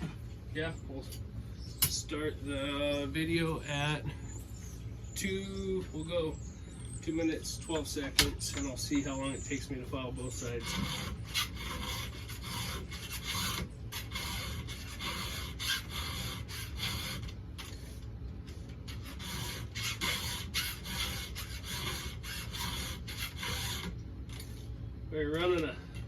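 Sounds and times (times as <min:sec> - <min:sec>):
file rasping on chainsaw chain: 0:10.2 - 0:17.4, 0:18.9 - 0:24.0.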